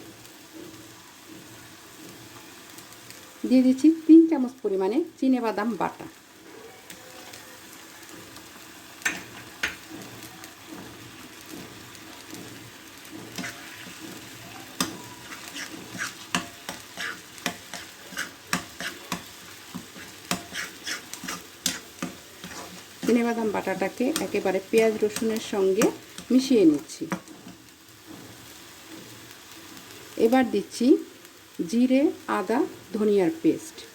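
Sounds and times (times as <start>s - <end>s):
paste sizzling in hot oil: 0.0s - 33.9s
utensil scraping a pan: 9.0s - 26.4s.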